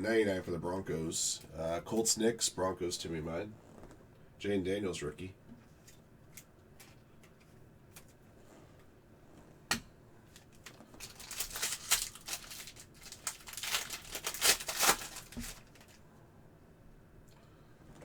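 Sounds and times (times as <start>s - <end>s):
foil wrapper tearing and crinkling: 10.3s - 16.0s.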